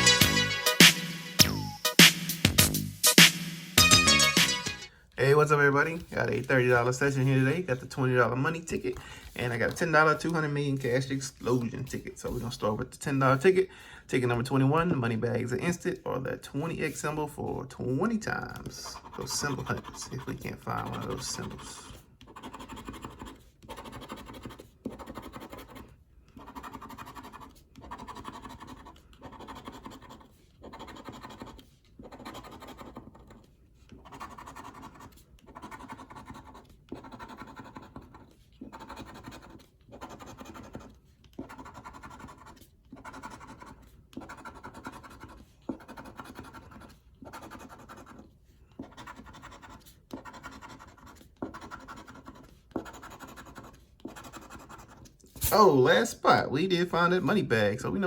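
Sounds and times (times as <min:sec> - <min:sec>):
lottery ticket being scratched: 0:18.2 - 0:56.4.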